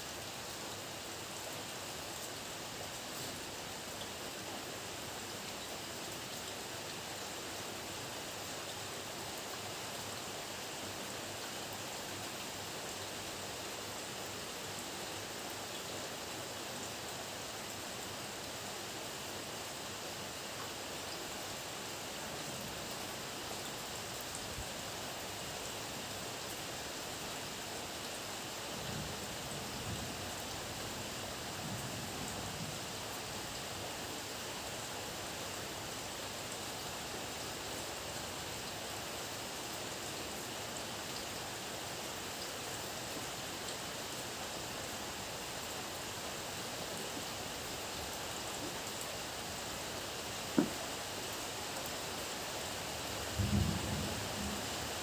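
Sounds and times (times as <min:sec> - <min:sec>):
heavy rain: 0:21.3 - 0:55.0
distant thunder rumbling: 0:53.2 - 0:55.0.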